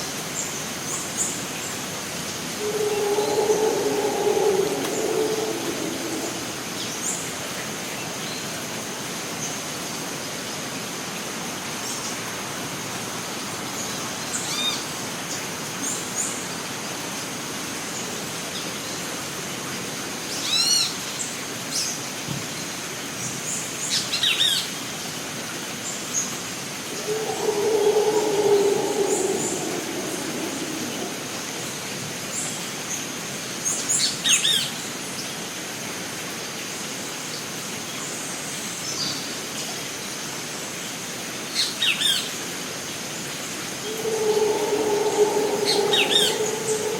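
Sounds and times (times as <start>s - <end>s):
rainforest hiss: 0.0s - 19.3s, 22.6s - 46.9s
low droning: 2.6s - 6.8s, 26.9s - 31.8s, 43.8s - 46.9s
thin high steady tone: 2.6s - 6.8s, 26.9s - 31.8s, 43.8s - 46.9s
bird calls: 2.6s - 6.9s, 26.9s - 31.6s, 43.8s - 46.9s.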